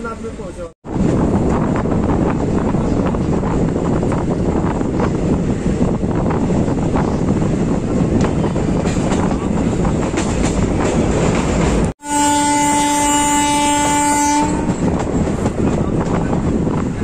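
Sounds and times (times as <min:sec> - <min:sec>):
train running rumble: 0:00.0 - 0:17.0
train horn: 0:12.0 - 0:14.9.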